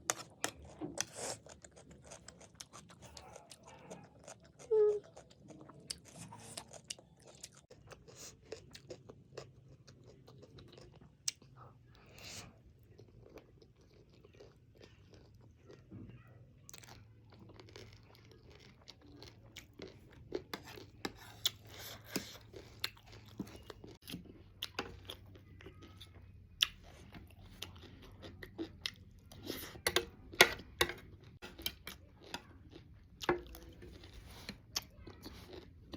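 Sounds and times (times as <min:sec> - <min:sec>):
crunchy snack chewing: 0:00.0 - 0:11.5, 0:31.5 - 0:35.9.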